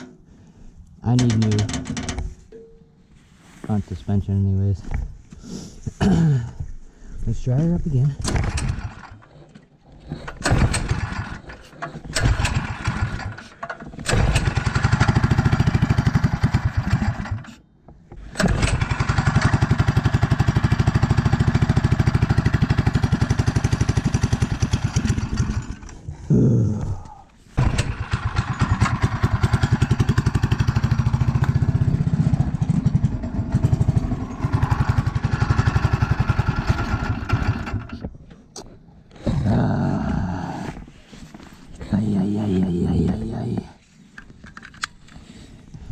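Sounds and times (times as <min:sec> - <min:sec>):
small petrol engine running rough: 0:08.3 - 0:09.5, 0:10.1 - 0:17.6, 0:18.2 - 0:26.0, 0:27.6 - 0:38.0.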